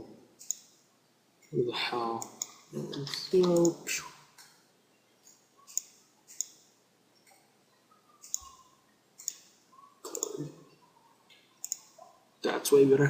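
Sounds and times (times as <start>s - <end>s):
computer mouse clicking: 0.4s - 0.8s, 2.2s - 3.8s, 5.2s - 7.5s, 8.1s - 10.5s, 11.3s - 12.1s.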